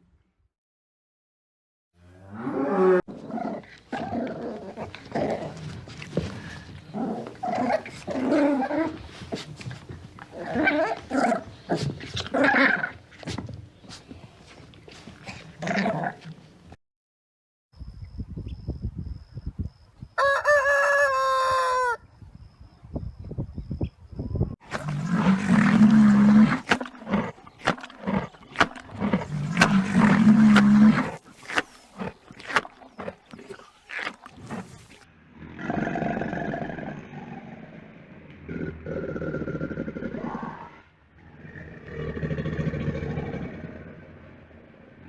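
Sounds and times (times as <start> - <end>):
lion roaring: 2.0 - 13.4, 14.9 - 16.4, 24.6 - 45.0
dog drawn-out calls: 24.6 - 35.0.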